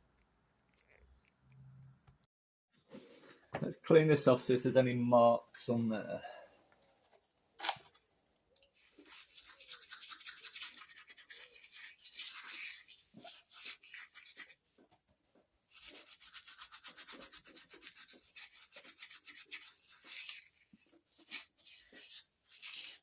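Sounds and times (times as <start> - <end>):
scrubbing on metal: 8.8 - 14.6, 15.7 - 23.0.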